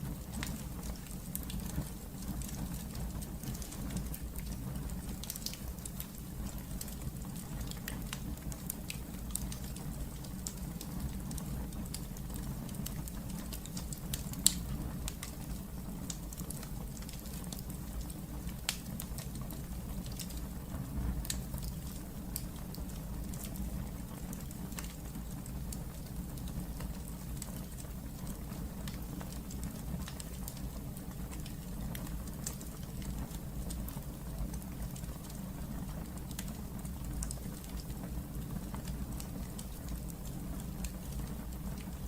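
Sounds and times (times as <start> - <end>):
crackles and pops of fire: 0.0 - 42.0
wood fire burning: 0.0 - 42.0.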